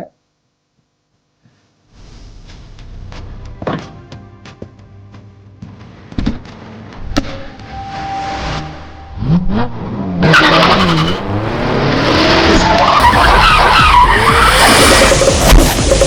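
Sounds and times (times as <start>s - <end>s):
car engine revving: 7.2s - 16.0s
tyre squeal: 7.7s - 16.0s.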